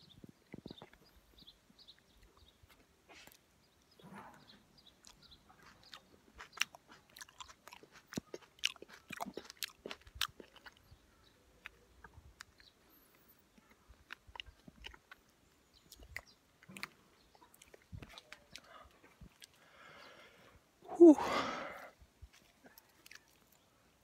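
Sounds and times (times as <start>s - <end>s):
wet chewing mouth clicks: 0.2s - 1.2s, 4.8s - 19.8s, 22.2s - 23.7s.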